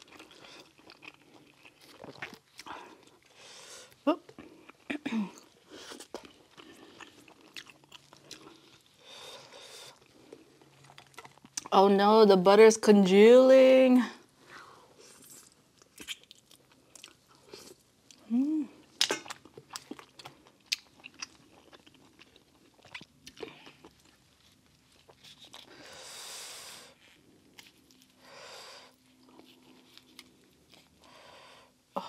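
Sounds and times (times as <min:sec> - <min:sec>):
close chewing and biting: 0:00.0 - 0:11.7, 0:15.2 - 0:18.2, 0:18.8 - 0:25.9, 0:26.9 - 0:28.3, 0:28.9 - 0:31.1
person humming: 0:18.2 - 0:18.8.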